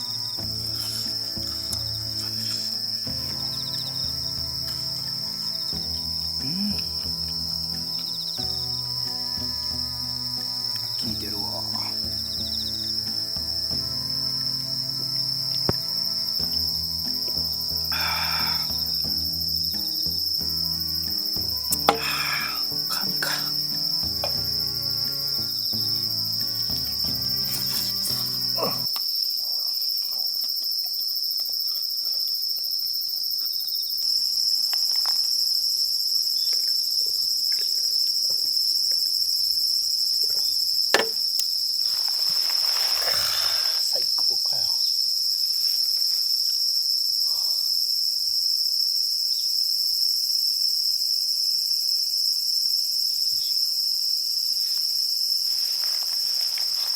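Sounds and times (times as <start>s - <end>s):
soft music: 0.0s - 28.9s
night insects chirring: 0.0s - 56.9s
brief rustle: 41.8s - 43.9s, 54.7s - 56.9s.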